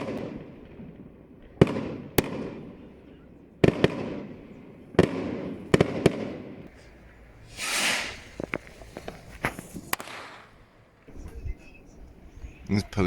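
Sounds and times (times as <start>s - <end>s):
smaller firework cracks: 0.0s - 11.3s
fireworks bangs echoing: 0.0s - 12.1s
firework hiss: 7.4s - 10.8s.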